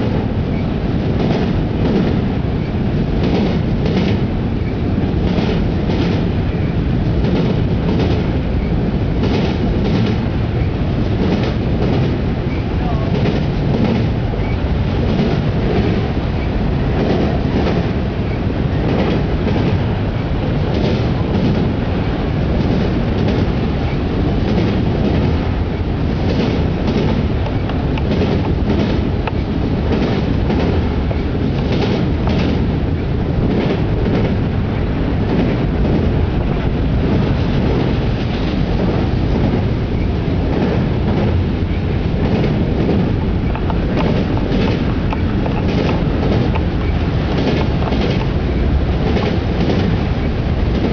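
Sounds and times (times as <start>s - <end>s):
freight cars rumbling on rails: 0.0s - 50.9s
wheels clicking over rail joints: 37.1s - 50.9s.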